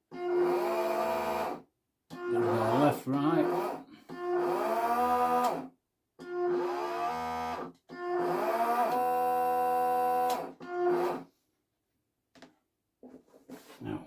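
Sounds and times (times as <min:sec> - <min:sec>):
small electric motors whirring: 0:00.2 - 0:11.3.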